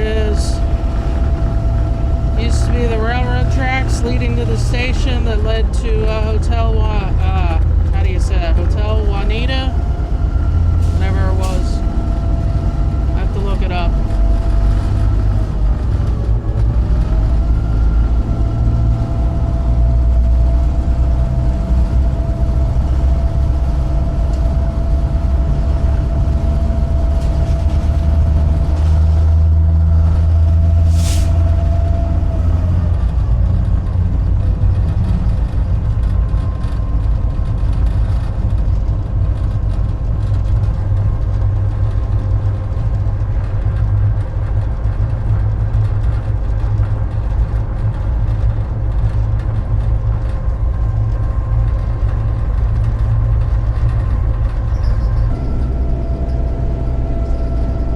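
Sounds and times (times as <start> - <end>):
high whine: 0.0 - 16.5, 48.5 - 57.9
locomotive diesel engine rumbling: 0.0 - 57.9
short hiss: 30.9 - 31.4.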